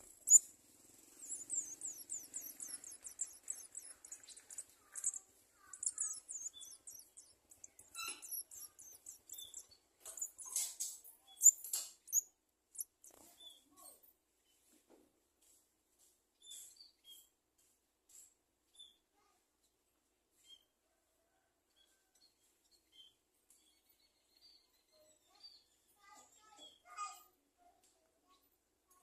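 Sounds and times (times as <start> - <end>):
nestlings chirping: 0.0 - 14.0.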